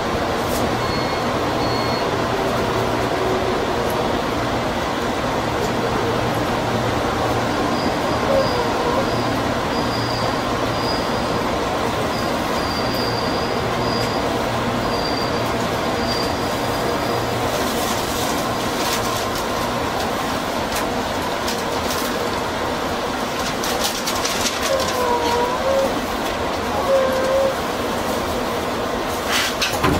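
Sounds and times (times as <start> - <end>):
train running rumble: 0.0 - 29.9
high wheel squeal: 7.7 - 17.4.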